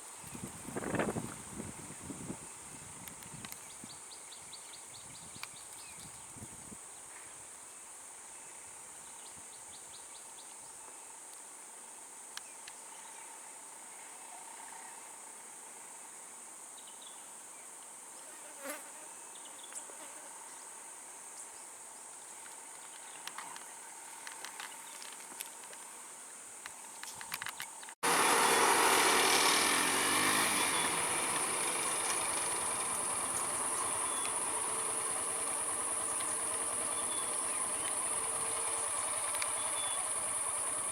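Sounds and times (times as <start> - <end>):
insects droning: 0.0 - 40.9
faint clicks: 32.0 - 40.8.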